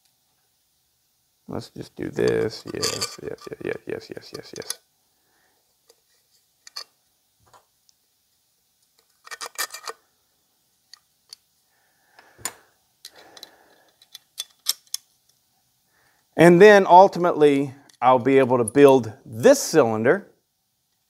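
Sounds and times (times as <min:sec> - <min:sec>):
tools clicking and rattling: 0:02.2 - 0:03.6, 0:04.3 - 0:04.8, 0:06.6 - 0:06.9, 0:09.0 - 0:10.0, 0:13.1 - 0:15.1.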